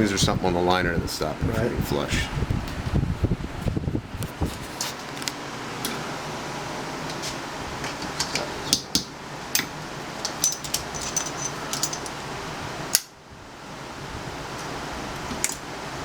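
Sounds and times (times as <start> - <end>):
shop fan noise: 0.0 - 16.0
small metal parts clicking: 9.5 - 12.2.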